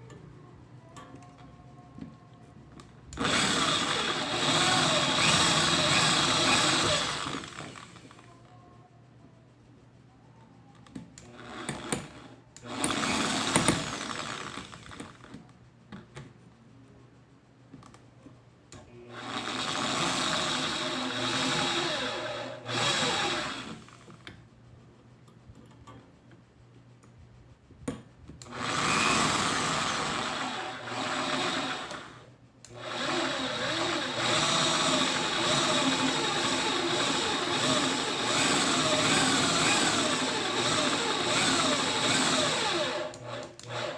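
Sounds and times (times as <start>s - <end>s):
small electric motor whining: 3.2s - 8.2s, 28.5s - 43.9s.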